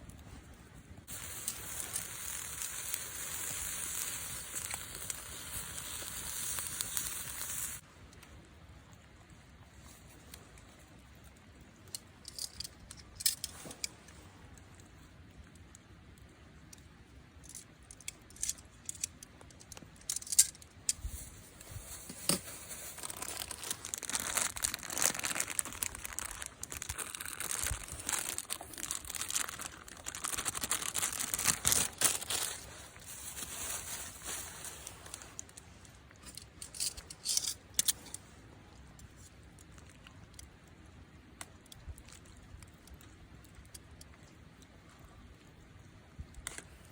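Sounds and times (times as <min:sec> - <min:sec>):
crinkling and rustling: 0:17.5 - 0:38.3.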